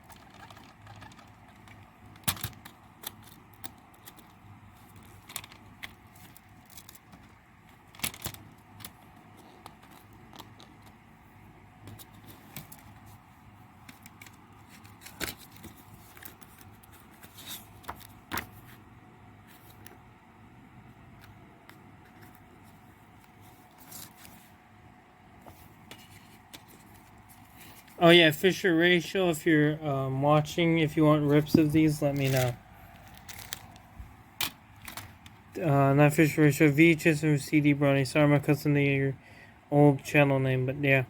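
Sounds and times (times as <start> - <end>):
plastic cd case clicking: 31.4 - 33.8.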